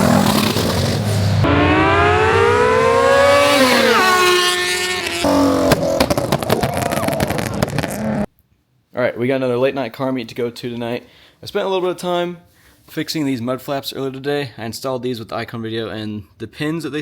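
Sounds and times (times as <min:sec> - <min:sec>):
car engine revving: 0:00.0 - 0:08.3
sharp cracks and pops: 0:05.7 - 0:08.1.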